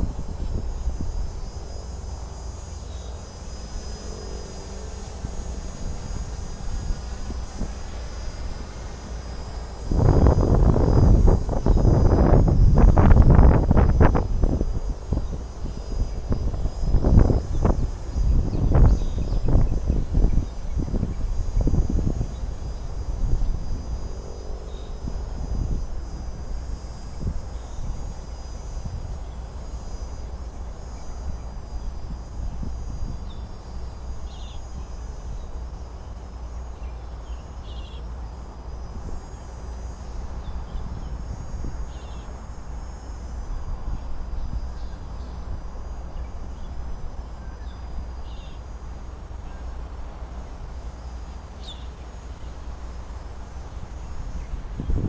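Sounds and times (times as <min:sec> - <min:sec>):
wind buffeting microphone: 0:00.0 - 0:36.6, 0:38.3 - 0:48.3, 0:52.2 - 0:55.0
high-pitched whine: 0:00.0 - 0:55.0.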